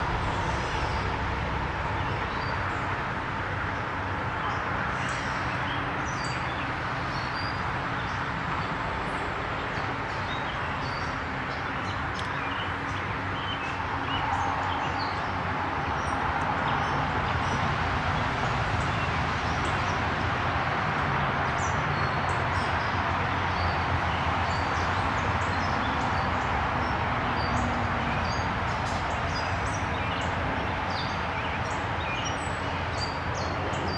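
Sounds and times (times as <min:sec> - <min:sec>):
steady rushing noise: 0:00.0 - 0:07.1, 0:07.7 - 0:33.9.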